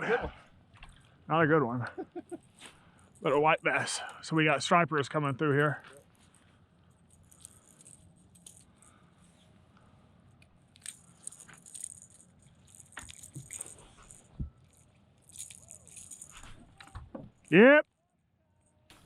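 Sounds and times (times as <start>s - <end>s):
fishing tackle rattling: 5.6s - 9.1s, 10.3s - 17.7s.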